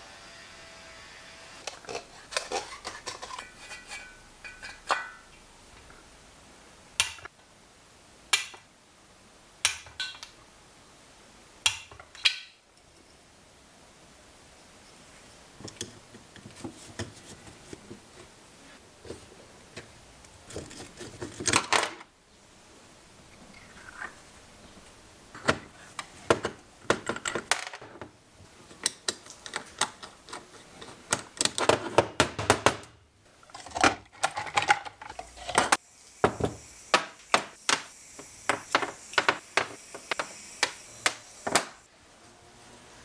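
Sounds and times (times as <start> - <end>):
hand tools and metal parts clattering: 1.6 - 5.3, 33.4 - 41.9.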